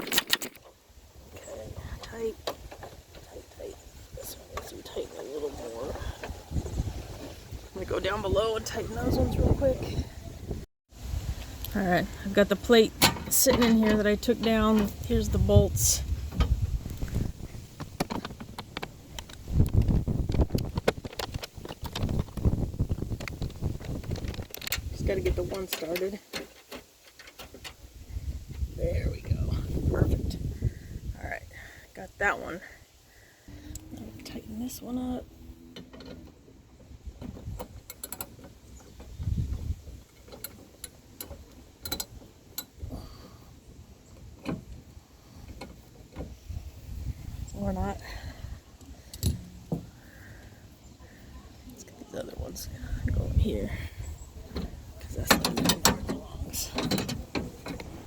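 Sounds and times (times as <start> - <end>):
clicks and knocks of bolts: 0.0 - 0.8, 25.5 - 27.8, 37.2 - 39.2, 40.0 - 42.8, 54.5 - 58.0.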